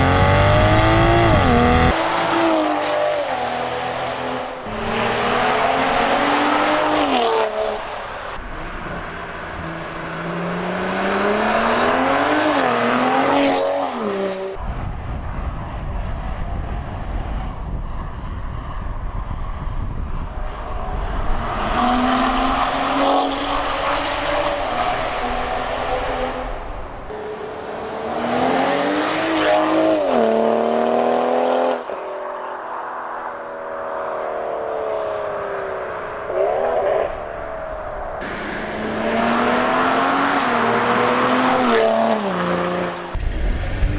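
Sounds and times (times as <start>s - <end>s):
car engine revving: 0.0s - 14.6s, 20.4s - 43.9s.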